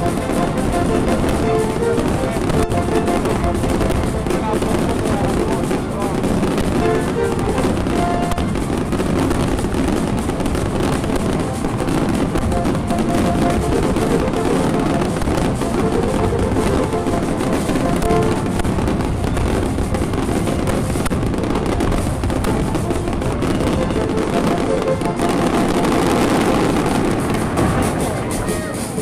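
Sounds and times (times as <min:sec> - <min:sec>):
fireworks crackling: 0:00.0 - 0:29.0
marching brass band playing: 0:00.0 - 0:29.0.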